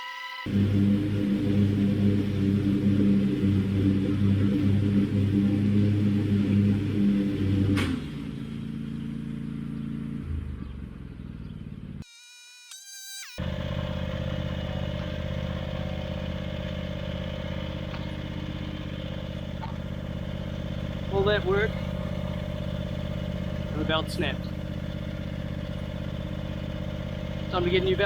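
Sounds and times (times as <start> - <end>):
short tone: 0.0 - 0.6
mower engine running: 0.5 - 12.0, 13.4 - 28.0.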